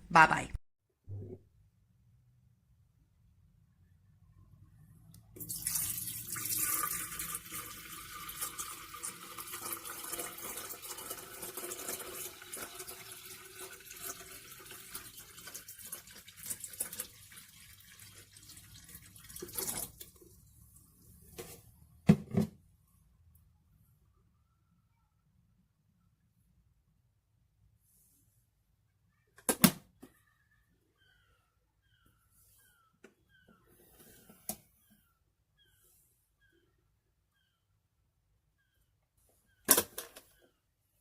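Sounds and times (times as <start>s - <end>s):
water running into a vessel: 5.4s - 20.4s.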